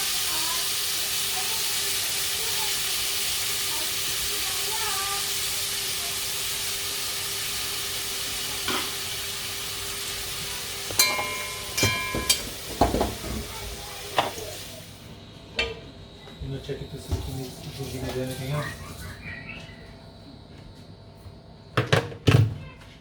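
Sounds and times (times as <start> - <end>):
food sizzling in a pan: 0.0 - 15.8, 16.7 - 19.3
utensil clinking against pan: 10.9 - 13.3.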